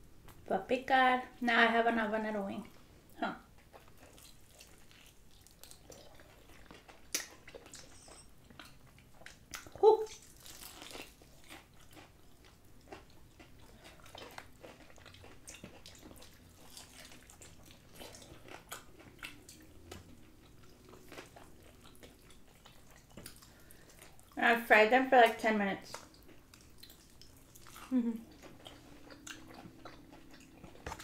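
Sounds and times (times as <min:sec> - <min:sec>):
crunching fried chicken: 0:03.7 - 0:24.4.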